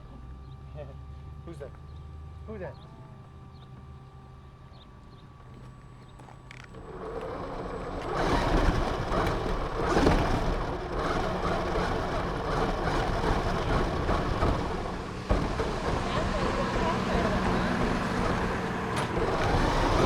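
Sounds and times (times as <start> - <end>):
tyres rolling on ground: 5.0 - 20.0
rc car motor: 6.2 - 20.0.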